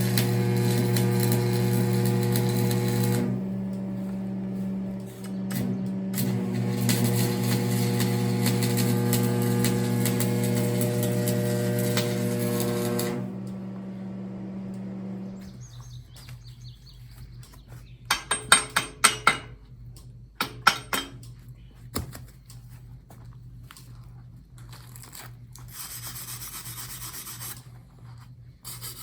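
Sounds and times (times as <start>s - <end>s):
engine running and shutting down: 0.0s - 16.7s
sharp metal clanks: 18.1s - 19.6s, 20.4s - 21.4s.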